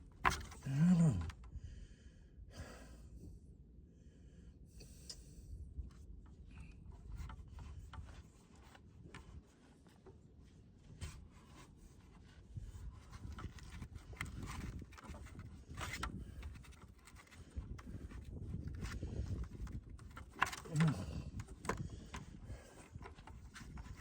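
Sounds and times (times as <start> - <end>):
knocks and scuffs of handling: 10.8 - 24.0.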